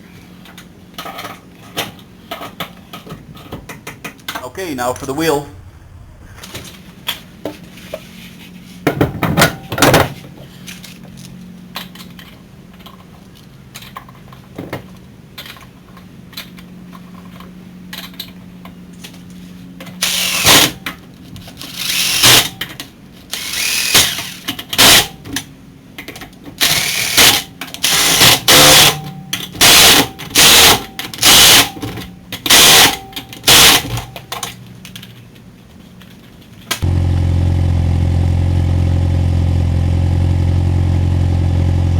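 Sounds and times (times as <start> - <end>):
impact wrench bursts: 20.0 - 20.8, 21.7 - 22.5, 23.3 - 25.2, 26.6 - 31.8, 32.5 - 34.0.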